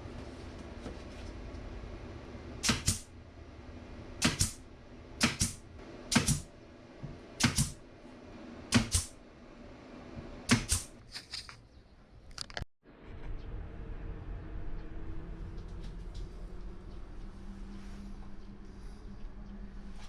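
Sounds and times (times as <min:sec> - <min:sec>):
low steady hum: 0:00.0 - 0:12.4, 0:13.0 - 0:20.0
sharp double knocks from tool: 0:02.6 - 0:03.1, 0:04.2 - 0:04.6, 0:05.2 - 0:06.5, 0:07.4 - 0:07.8.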